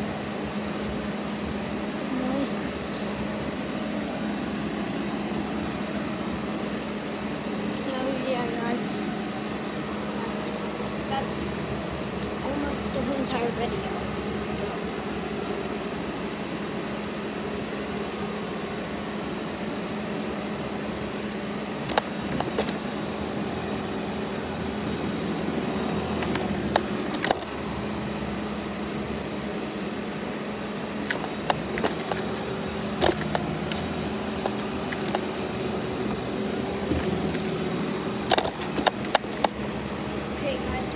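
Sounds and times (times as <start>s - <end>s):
robot vacuum motor hum: 21.6s - 40.9s
sharp clicks and knocks: 26.2s - 27.5s, 36.8s - 39.6s.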